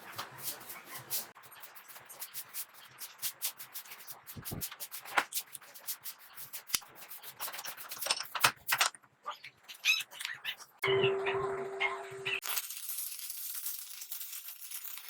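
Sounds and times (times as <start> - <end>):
hand sanding strokes: 0.0 - 8.0.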